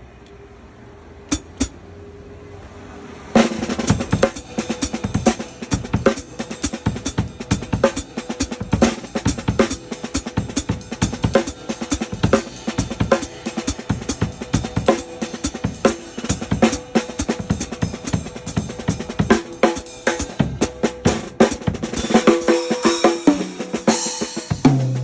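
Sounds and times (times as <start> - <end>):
drum kit played in fast groove: 1.3 - 1.7, 3.4 - 25.0.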